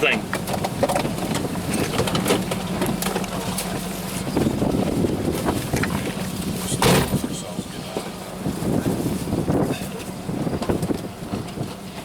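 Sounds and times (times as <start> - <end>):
van engine running: 0.0 - 12.0
wind noise: 0.2 - 12.0
loud thump: 6.8 - 7.2.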